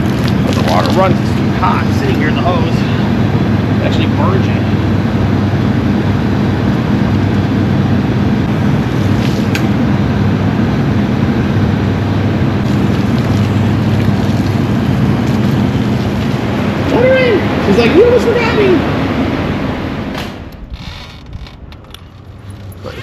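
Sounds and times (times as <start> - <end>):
low hum: 0.0 - 23.0
water spraying from hose: 12.6 - 18.8.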